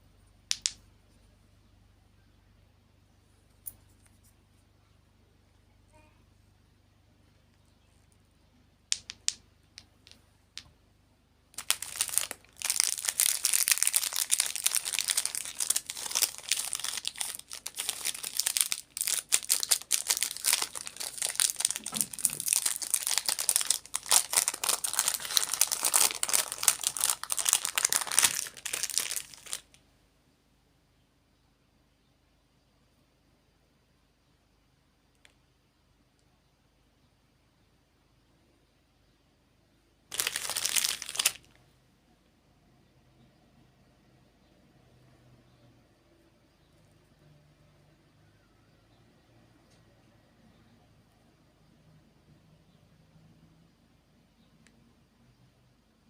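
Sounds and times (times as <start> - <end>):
plastic packaging crinkling: 11.6 - 29.8, 40.1 - 41.6.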